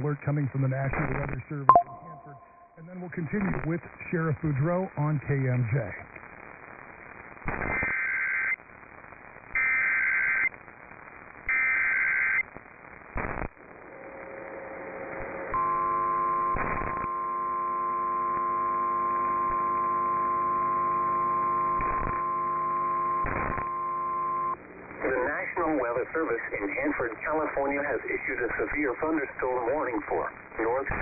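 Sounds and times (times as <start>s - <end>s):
static crackles: 0.0s - 31.0s
data tone bursts: 1.7s - 2.8s
steady attention tone: 1.7s - 2.8s, 15.6s - 24.6s.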